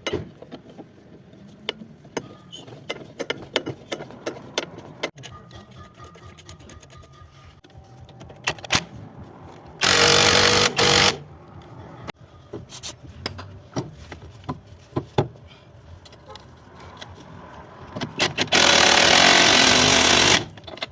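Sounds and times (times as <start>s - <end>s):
metallic clicks and tool knocks: 0.0s - 7.3s, 20.5s - 20.9s
pneumatic impact wrench bursts: 9.8s - 11.2s, 18.2s - 20.5s.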